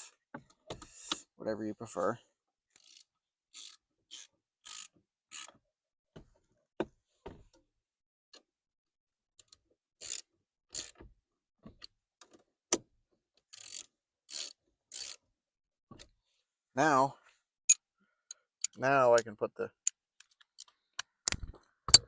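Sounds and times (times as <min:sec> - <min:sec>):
ratchet clicking: 0:13.5 - 0:15.2.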